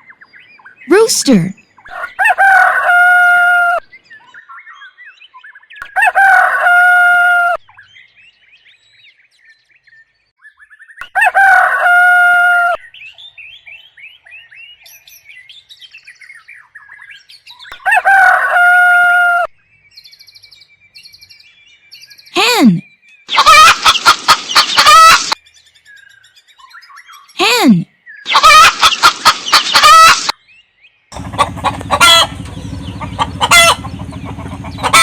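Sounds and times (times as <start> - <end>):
rooster crowing: 1.9 - 3.8, 6.0 - 7.6, 11.2 - 12.8, 17.8 - 19.5.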